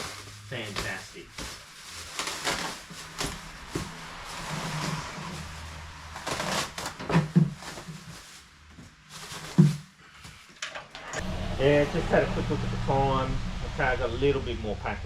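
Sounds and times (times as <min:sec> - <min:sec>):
rustling and handling noise: 0:00.0 - 0:10.9.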